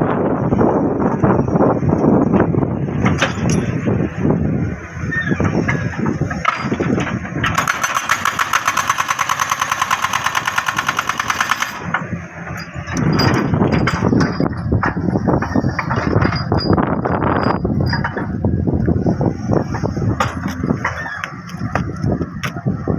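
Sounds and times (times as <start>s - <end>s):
jackhammer hammering rock: 7.5s - 11.9s.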